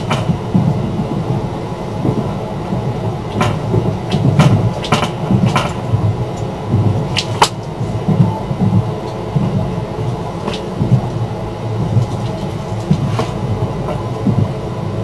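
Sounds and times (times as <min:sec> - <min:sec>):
wheel clacks over rail joints: 0:00.0 - 0:00.8, 0:03.3 - 0:11.2
train interior rumble: 0:00.0 - 0:15.0.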